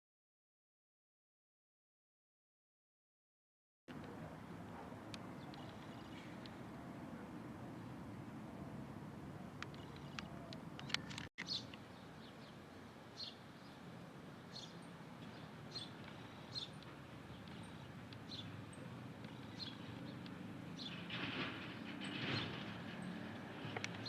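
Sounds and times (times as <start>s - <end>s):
bird chirping: 4.0s - 21.1s.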